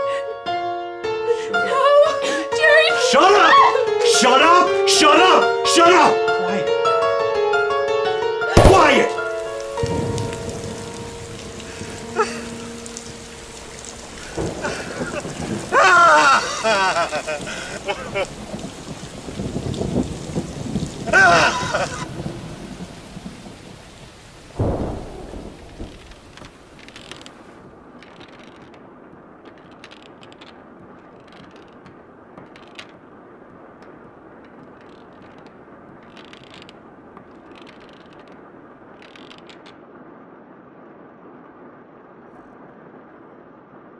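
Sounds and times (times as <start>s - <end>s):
rain falling: 1.3s - 6.8s, 8.5s - 40.2s
thunder rumble: 8.5s - 28.5s.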